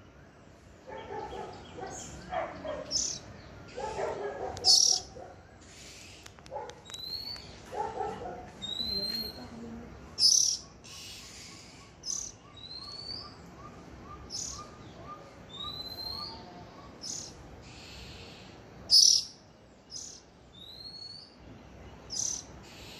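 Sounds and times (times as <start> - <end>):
sharp high bird chirps: 2.8 - 7.6, 10.2 - 21.4, 22.1 - 22.9.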